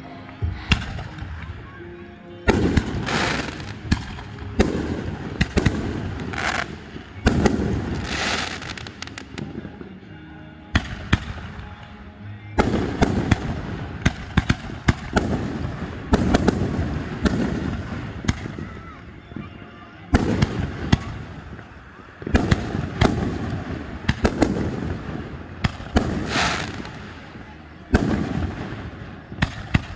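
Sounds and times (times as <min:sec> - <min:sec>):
firework hissing crackle: 0:02.5 - 0:09.5, 0:20.2 - 0:29.9
firework bangs: 0:02.5 - 0:09.6, 0:12.6 - 0:19.0, 0:20.1 - 0:29.9.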